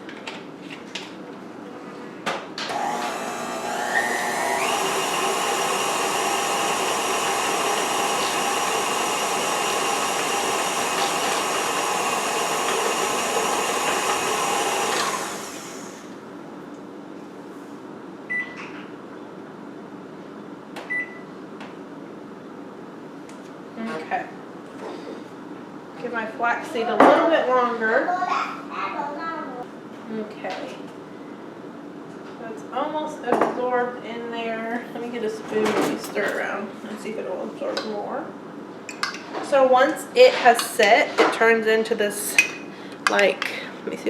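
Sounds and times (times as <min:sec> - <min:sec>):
electric mixer running: 0:02.7 - 0:16.2.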